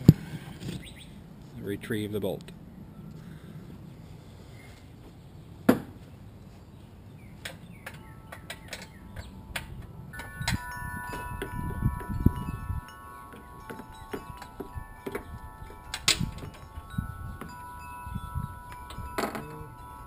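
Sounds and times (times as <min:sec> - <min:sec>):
hand tools clinking: 0:07.5 - 0:20.0
struck metal ringing: 0:08.0 - 0:20.0.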